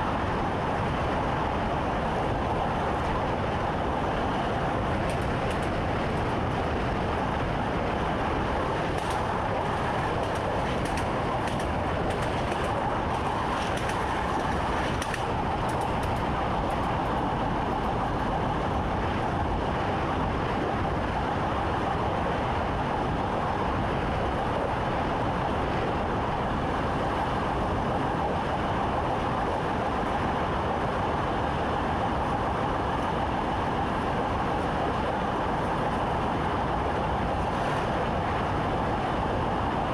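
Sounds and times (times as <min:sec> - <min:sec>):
train running rumble: 0:00.0 - 0:39.9.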